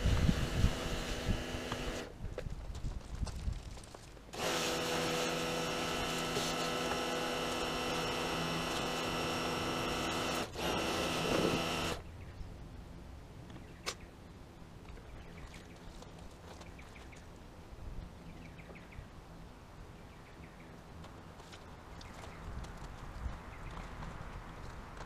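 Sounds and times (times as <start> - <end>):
power tool motor humming: 0.0 - 2.1, 4.3 - 12.0.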